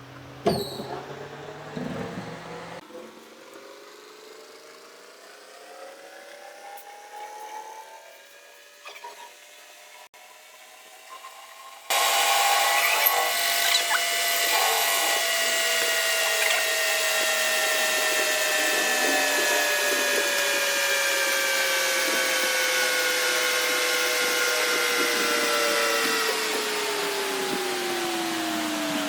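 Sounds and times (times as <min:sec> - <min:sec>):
metal lathe whine: 0:07.9 - 0:29.0.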